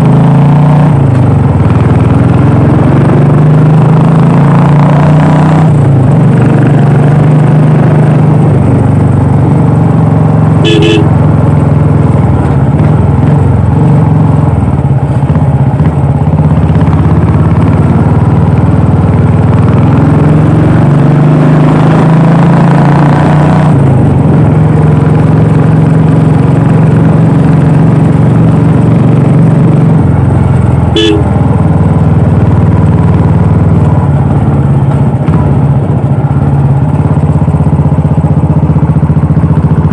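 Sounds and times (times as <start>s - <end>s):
motorcycle engine running: 0.0s - 39.9s
short horn beep: 10.6s - 11.2s, 30.9s - 31.3s.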